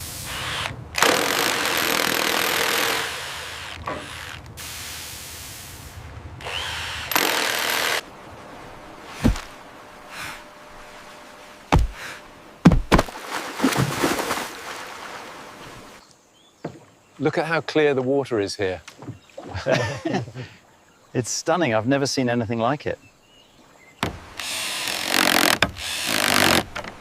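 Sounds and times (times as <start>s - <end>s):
power tool running: 0.4s - 4.4s, 6.4s - 8.0s
sharp knocks: 11.7s - 12.0s, 12.6s - 13.1s.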